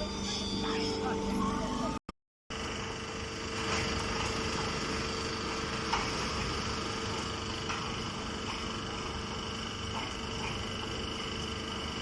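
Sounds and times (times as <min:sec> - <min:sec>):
hay baler humming: 0:02.6 - 0:12.0.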